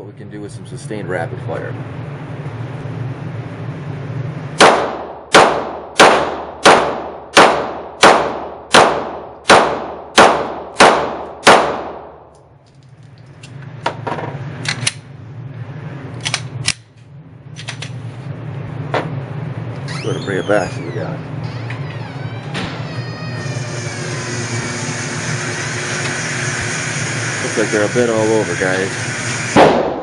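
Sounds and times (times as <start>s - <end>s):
pistol shots echoing: 4.6s - 12.2s, 29.6s - 30.0s.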